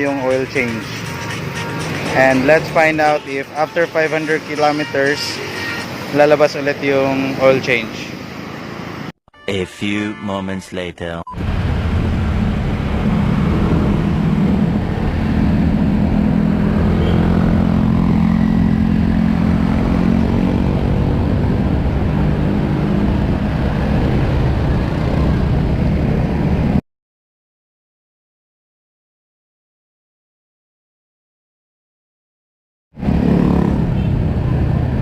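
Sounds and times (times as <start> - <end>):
road noise: 0.0 - 9.2, 11.3 - 26.8, 33.0 - 35.0
wind noise: 11.4 - 17.8, 18.7 - 26.8
scooter engine running: 12.3 - 20.5.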